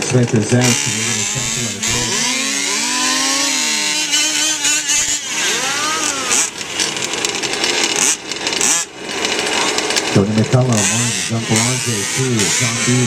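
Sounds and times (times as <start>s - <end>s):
small two-stroke engines revving: 0.0s - 13.0s.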